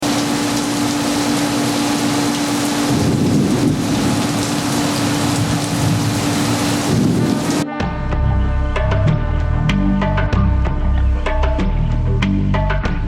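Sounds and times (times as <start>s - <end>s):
heavy rain falling: 0.0s - 7.7s.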